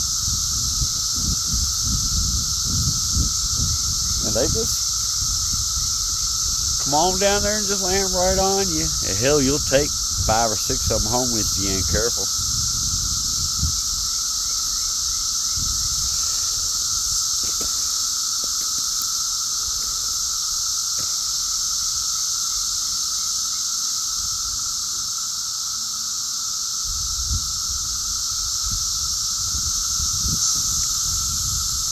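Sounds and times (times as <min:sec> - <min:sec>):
low rumbling on microphone: 0:00.0 - 0:14.1
cicadas droning buzz: 0:00.0 - 0:31.9.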